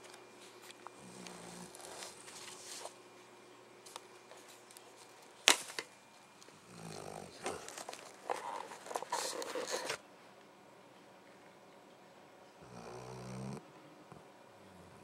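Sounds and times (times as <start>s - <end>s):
dog snoring and snuffling: 0.9s - 3.0s, 6.5s - 10.0s, 12.6s - 15.0s.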